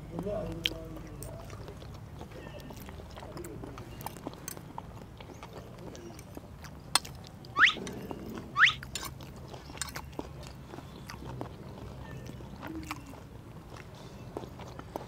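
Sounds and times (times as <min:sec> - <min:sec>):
people chewing food: 0:00.0 - 0:15.0
sharp rising chirps: 0:07.6 - 0:07.9, 0:08.6 - 0:08.8.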